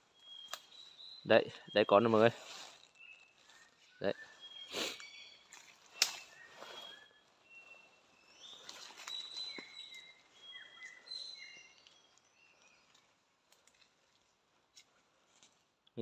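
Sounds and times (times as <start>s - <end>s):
high whistled bird calls: 0.1s - 12.9s.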